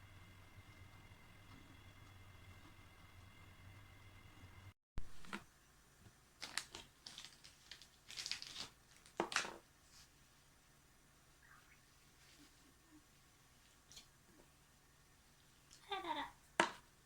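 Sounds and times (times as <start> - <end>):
crinkling and rustling: 5.0 - 10.2.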